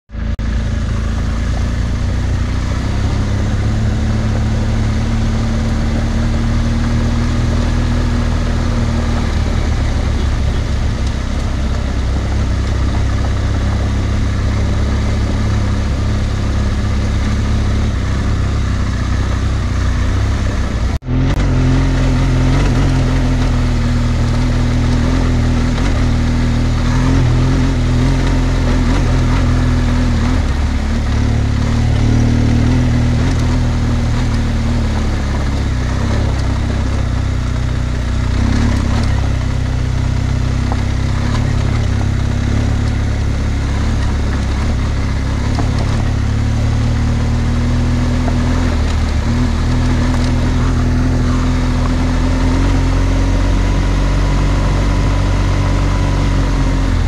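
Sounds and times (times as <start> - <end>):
motorcycle engine running: 0.1 - 57.0
tyre noise on gravel: 1.1 - 55.9.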